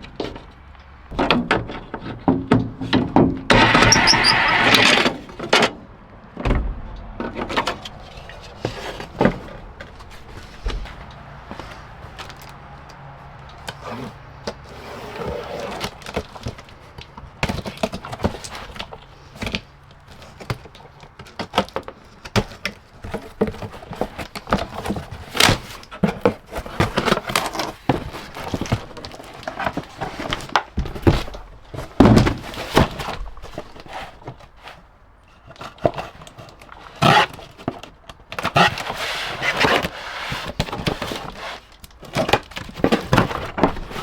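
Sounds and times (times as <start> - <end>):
clicks taps and thunks on door: 6.4 - 8.4.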